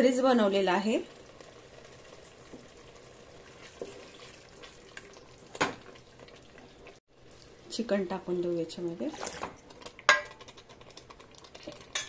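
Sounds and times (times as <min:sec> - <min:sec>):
spatula stirring in pot: 0:02.1 - 0:05.6, 0:09.0 - 0:12.0.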